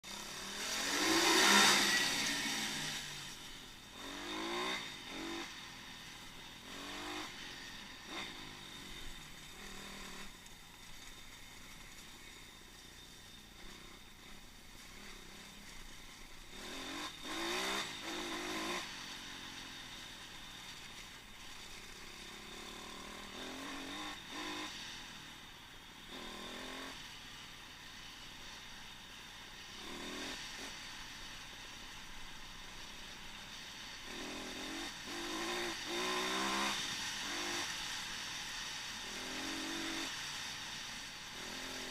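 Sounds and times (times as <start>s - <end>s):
pit bike engine revving: 0.0s - 10.4s, 13.4s - 19.9s, 21.4s - 25.0s, 26.0s - 27.1s, 29.7s - 31.4s, 34.0s - 41.9s
wind hiss: 0.1s - 41.9s.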